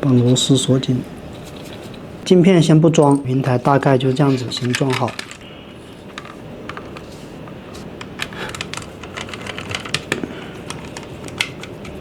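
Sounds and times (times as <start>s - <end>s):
small clicks and taps of parts: 8.0s - 12.0s.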